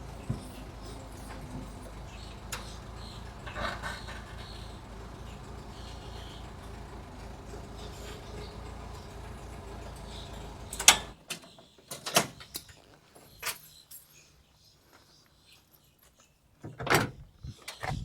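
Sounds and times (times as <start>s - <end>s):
low motor hum: 0.0s - 11.2s.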